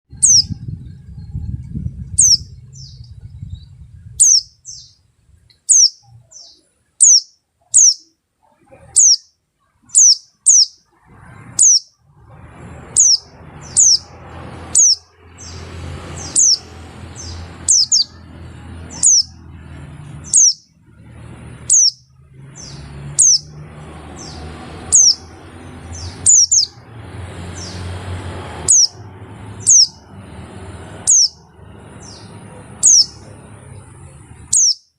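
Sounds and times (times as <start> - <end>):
bird high descending calls: 0.1 - 5.0, 5.6 - 30.2, 30.9 - 33.4, 34.4 - 34.9
low rumble and hiss: 0.1 - 10.0.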